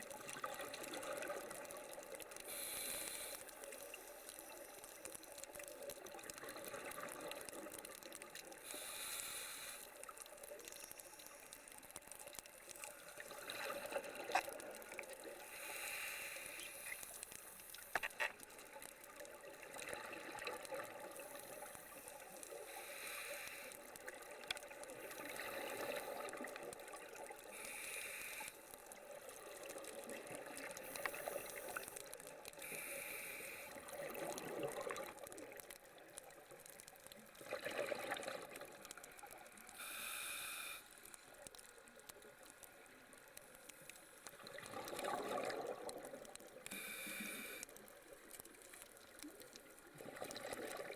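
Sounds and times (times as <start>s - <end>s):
underwater regulator hiss: 2.5s - 4.8s, 8.6s - 10.0s, 15.4s - 18.3s, 21.2s - 23.8s, 25.0s - 26.4s, 27.5s - 28.7s, 30.6s - 33.9s, 39.8s - 41.1s, 46.7s - 47.7s
exhaled bubbles bursting: 33.9s - 35.6s, 37.4s - 38.8s, 44.4s - 46.3s, 49.9s - 50.9s.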